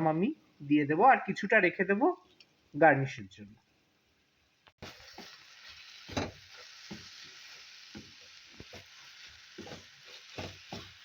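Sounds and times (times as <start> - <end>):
carrots sizzling in a pan: 4.8 - 11.0
spatula scraping and knocking pan: 6.0 - 11.0.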